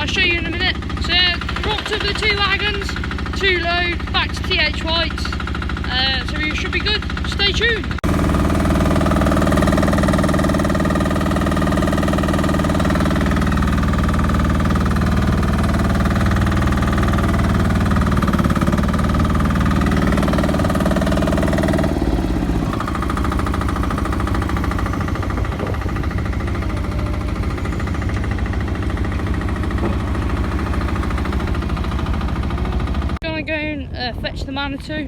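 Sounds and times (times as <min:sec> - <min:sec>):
heavy diesel engine idling: 0:00.0 - 0:33.4.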